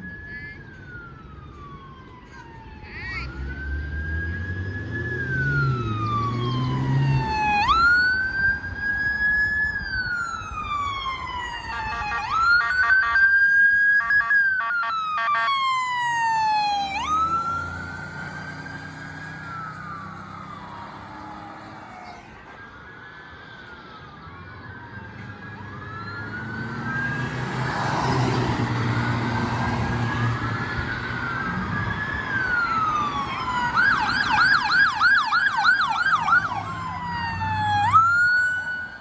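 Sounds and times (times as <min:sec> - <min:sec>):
emergency siren wailing: 0:00.0 - 0:39.0
fast warbling siren: 0:00.1 - 0:39.0
vehicle rumbling past: 0:03.2 - 0:09.0, 0:15.7 - 0:22.2, 0:24.3 - 0:38.9.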